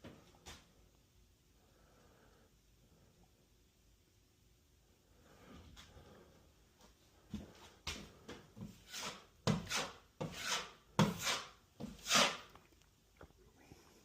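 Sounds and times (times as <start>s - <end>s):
putty knife scraping compound: 8.3s - 12.7s.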